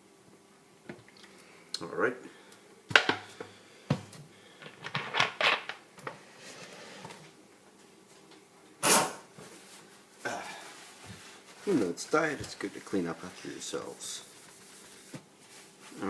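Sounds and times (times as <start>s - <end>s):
rustling scrape: 8.8s - 16.0s.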